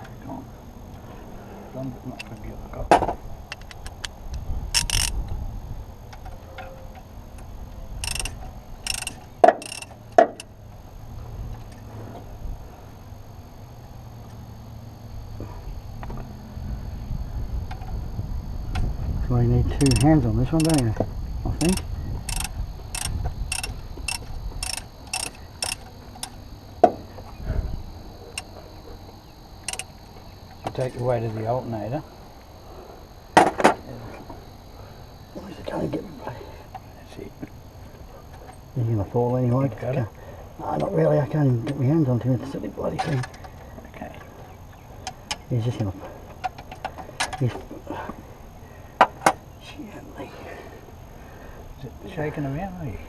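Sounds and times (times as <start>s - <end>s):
ratchet wrench clicking: 3.5s - 5.3s, 7.4s - 10.5s, 19.8s - 20.9s, 21.6s - 26.4s, 29.6s - 29.9s.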